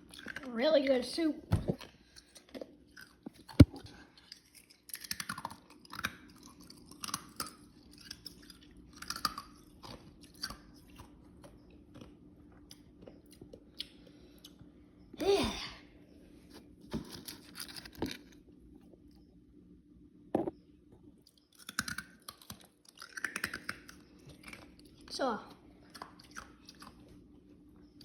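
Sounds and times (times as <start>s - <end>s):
person chewing and eating: 0.0s - 0.5s, 1.7s - 14.8s, 21.2s - 28.0s.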